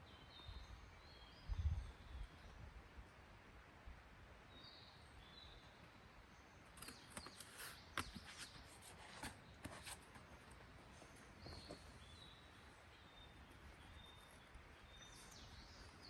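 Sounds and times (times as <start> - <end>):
faint bird chirps: 6.4 - 16.0.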